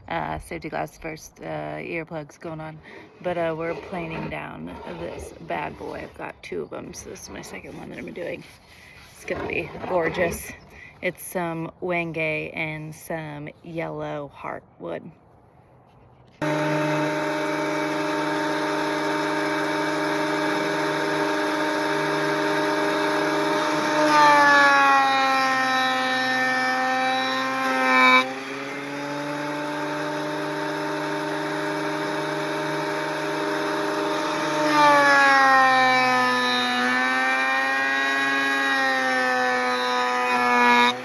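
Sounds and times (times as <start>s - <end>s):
thickness planer whining: 2.5s - 10.9s, 16.4s - 41.0s
planer cutting wooden board: 2.8s - 6.3s, 6.9s - 10.7s, 16.4s - 41.0s.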